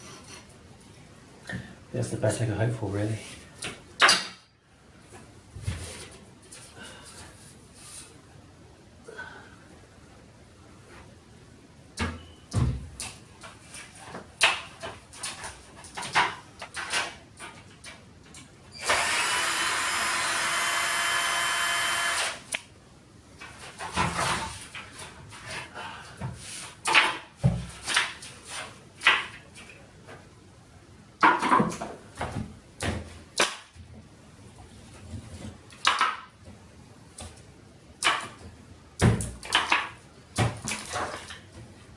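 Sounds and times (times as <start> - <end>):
power tool running: 18.8 - 22.4
tiles and plasterboard clattering: 23.4 - 29.8, 31.2 - 33.6, 38.0 - 41.7.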